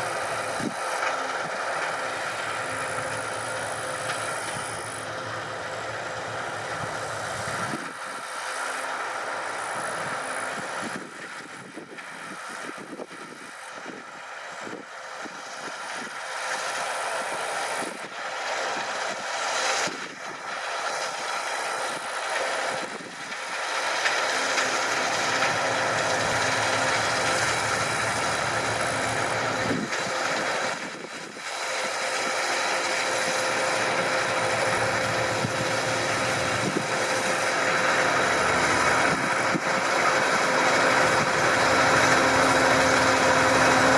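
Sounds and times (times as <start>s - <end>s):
combine harvester droning: 0.0s - 43.9s.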